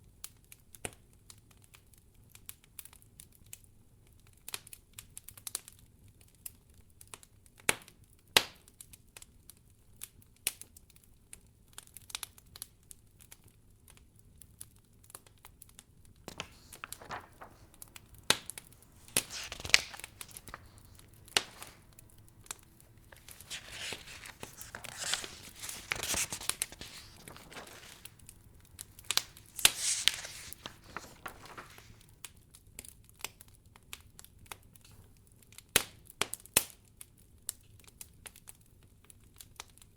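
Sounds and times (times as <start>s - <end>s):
wood fire crackling: 16.3s - 24.9s.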